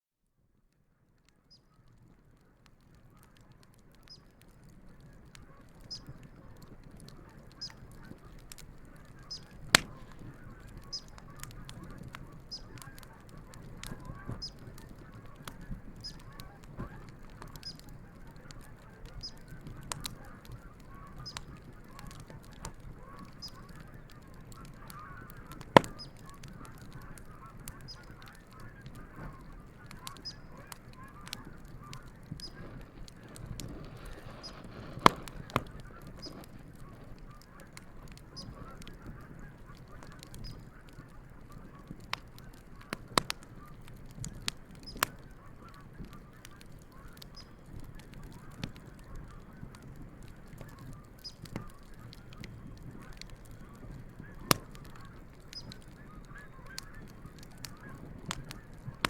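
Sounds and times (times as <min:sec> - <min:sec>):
campfire crackling: 0:00.6 - 0:59.0
geese honking: 0:07.3 - 0:43.9, 0:54.2 - 0:59.0.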